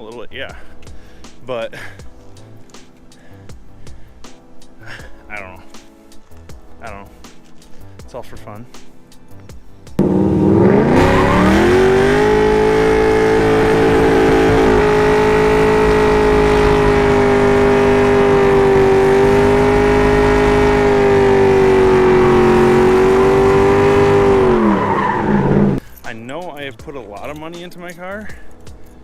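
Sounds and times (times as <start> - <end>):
car engine revving: 10.0 - 25.8.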